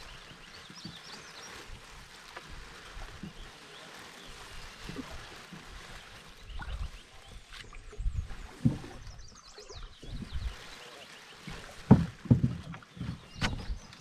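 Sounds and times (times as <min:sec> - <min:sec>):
paddle splashing in water: 0:00.0 - 0:14.0
paddle knocking against hull: 0:11.5 - 0:14.0.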